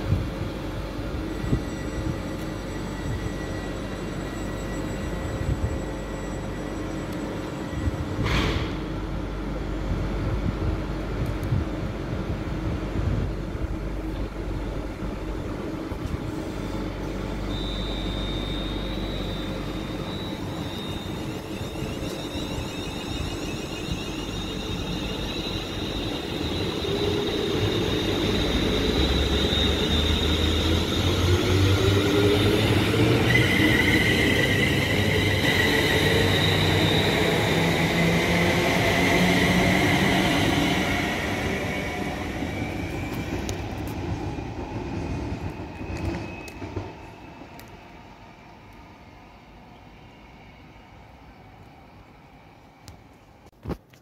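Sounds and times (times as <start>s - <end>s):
steady high whine: 0.0s - 10.7s, 13.2s - 44.0s
train rumble: 0.0s - 47.8s
wavering high-pitched squeal: 1.1s - 8.4s, 16.3s - 47.5s.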